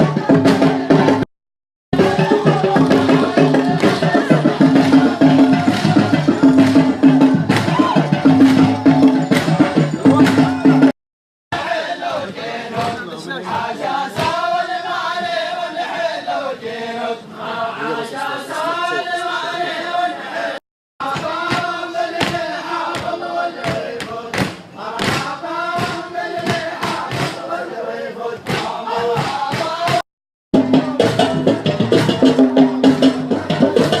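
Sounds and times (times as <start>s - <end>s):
group chanting folk song: 0.0s - 1.3s, 2.0s - 10.9s, 11.5s - 30.0s
sharp percussive beats: 0.0s - 1.3s, 2.0s - 11.0s, 21.0s - 27.5s, 28.4s - 30.0s, 30.6s - 34.0s.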